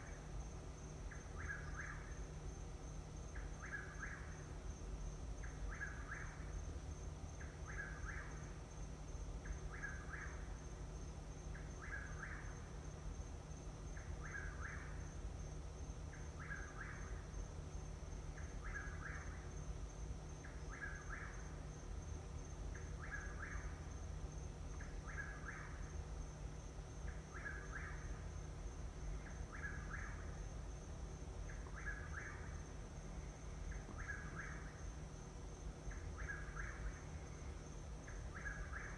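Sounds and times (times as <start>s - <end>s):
steady high-pitched whine: 0.0s - 38.9s
night bird two-part call: 24.8s - 25.9s, 27.1s - 28.2s, 29.3s - 30.4s, 31.5s - 32.6s, 33.7s - 34.8s, 35.9s - 37.2s, 38.1s - 38.9s.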